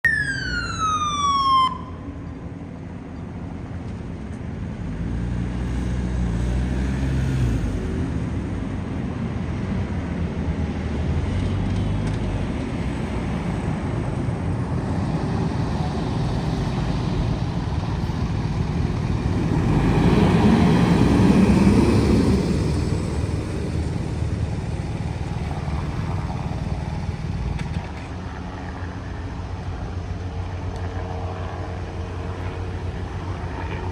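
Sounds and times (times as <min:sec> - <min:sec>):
siren sliding down in pitch: 0:00.0 - 0:02.1
vehicles passing rumble: 0:00.0 - 0:33.9.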